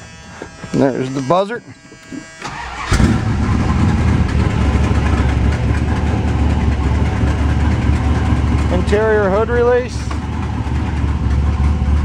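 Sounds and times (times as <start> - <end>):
warning buzzer: 0.0 - 3.0
car engine starting and idling: 2.0 - 12.0.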